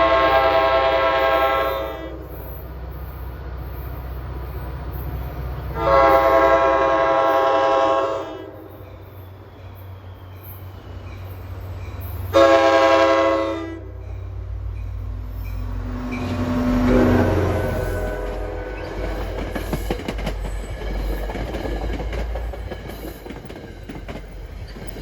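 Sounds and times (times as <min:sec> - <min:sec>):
train air horn blasts: 0:00.0 - 0:02.6, 0:05.7 - 0:08.8, 0:12.3 - 0:14.2, 0:15.6 - 0:19.5
diesel locomotive rumble: 0:00.0 - 0:25.0.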